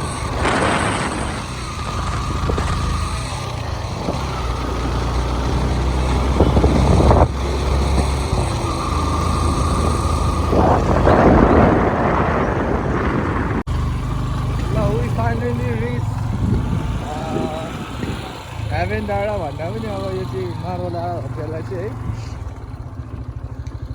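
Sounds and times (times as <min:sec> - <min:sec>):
wind rushing over microphone: 0:00.0 - 0:13.7, 0:14.6 - 0:19.0
motorcycle engine running: 0:00.0 - 0:23.9.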